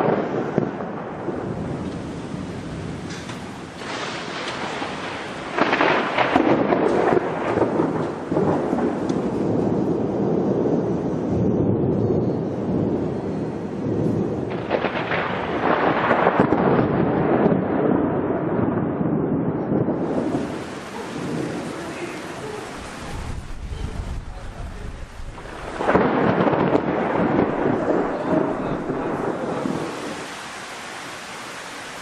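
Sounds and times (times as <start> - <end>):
steady rain: 0.0 - 32.0
thunder rumbling: 0.0 - 32.0.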